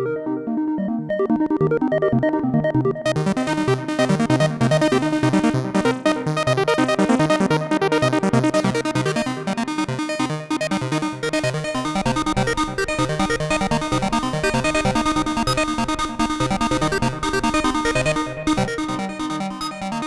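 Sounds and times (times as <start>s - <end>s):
synthesizer plucked notes with echoes: 10.7s - 20.0s.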